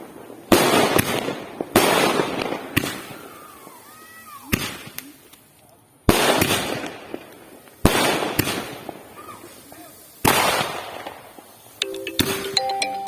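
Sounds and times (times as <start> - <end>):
fireworks bangs: 0.0 - 5.0, 6.1 - 11.8
fireworks crackle: 0.0 - 11.9
music: 11.8 - 13.0.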